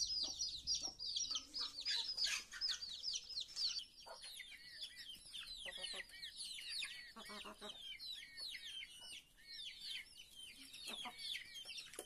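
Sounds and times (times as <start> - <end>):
chicken clucking: 0.0 - 12.0
chicks peeping: 0.0 - 12.0.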